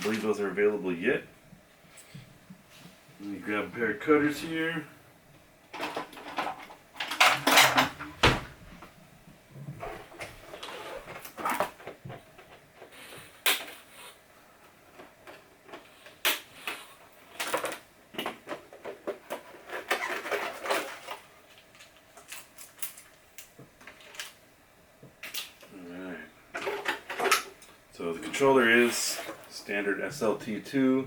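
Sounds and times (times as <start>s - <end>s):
plastic packaging rustling: 0.0s - 0.6s, 18.5s - 24.4s.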